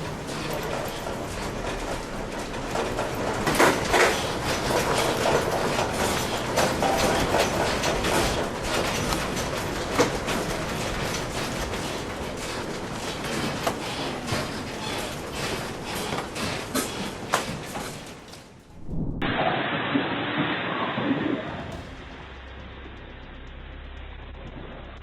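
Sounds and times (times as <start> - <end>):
objects rattling and clattering: 0.0 - 18.8.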